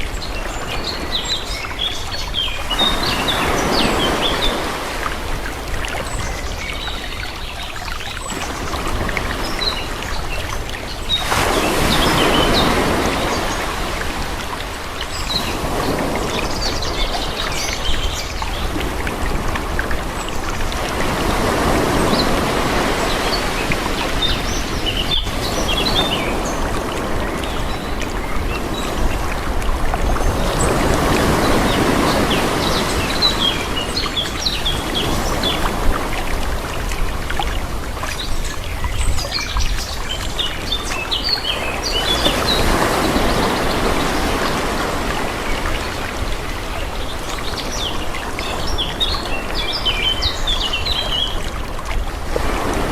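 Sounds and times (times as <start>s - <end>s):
small waves washing in: 0.0s - 52.9s.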